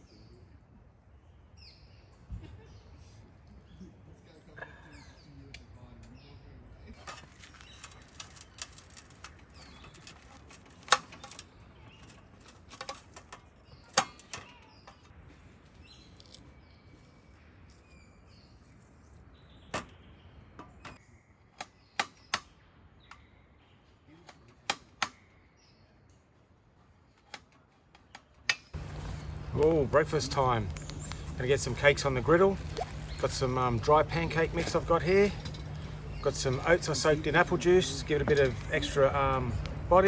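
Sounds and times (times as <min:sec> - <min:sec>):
campfire crackling: 0:07.0 - 0:12.5, 0:28.7 - 0:40.0.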